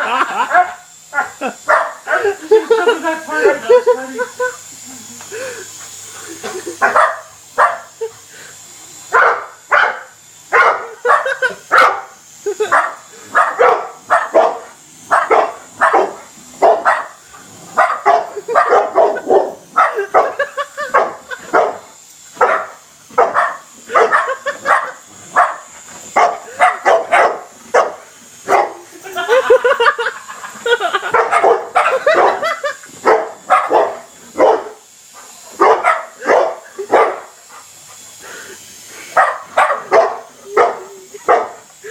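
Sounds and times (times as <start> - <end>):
helicopter buzzing: 0.0 - 41.9
dog barking excitedly: 0.5 - 2.4, 6.8 - 7.9, 9.1 - 17.2, 17.8 - 21.8, 22.4 - 28.8, 31.0 - 34.8, 35.6 - 37.4, 39.2 - 41.6.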